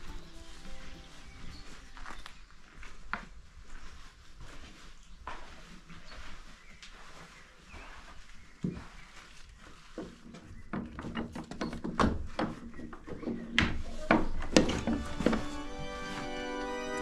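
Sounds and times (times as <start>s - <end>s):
quiet footsteps: 0.0s - 17.0s
music with distinct notes: 14.8s - 17.0s.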